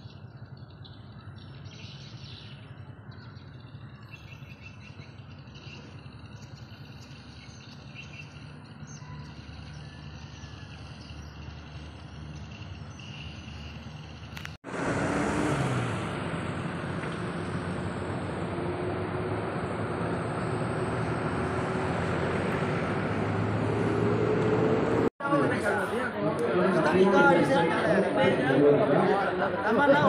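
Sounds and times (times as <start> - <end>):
birds chirping and calling: 0.0 - 14.4
pulsing insect trill: 5.2 - 14.4.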